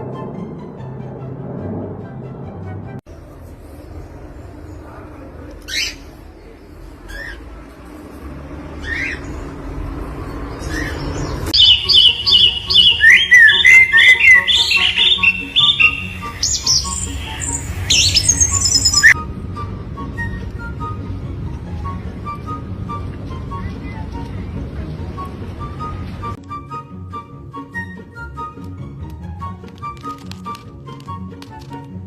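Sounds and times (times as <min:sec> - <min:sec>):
bird chirping calls: 0:10.6 - 0:19.2.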